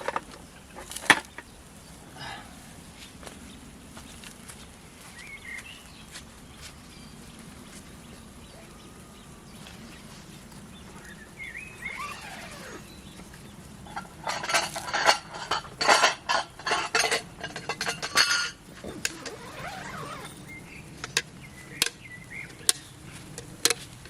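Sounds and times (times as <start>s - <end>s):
hard objects clinking together: 13.9s - 22.0s.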